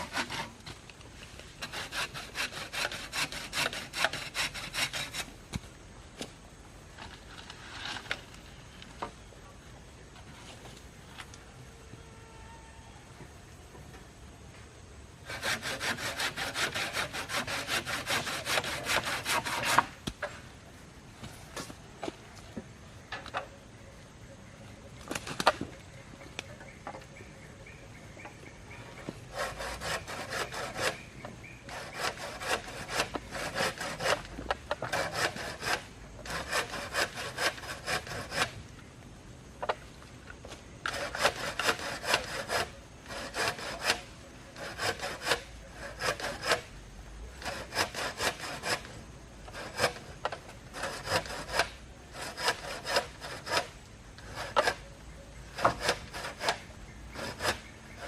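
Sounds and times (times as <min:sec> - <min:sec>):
hand saw cutting wood: 0:00.0 - 0:00.6, 0:01.6 - 0:05.3, 0:15.2 - 0:20.0, 0:29.3 - 0:38.6, 0:40.9 - 0:46.7, 0:47.4 - 0:54.9, 0:55.5 - 0:58.0.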